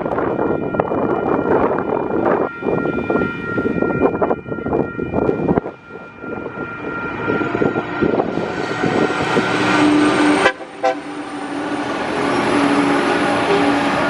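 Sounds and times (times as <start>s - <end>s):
diesel locomotive engine: 0.0s - 14.0s
locomotive horn: 6.8s - 14.0s.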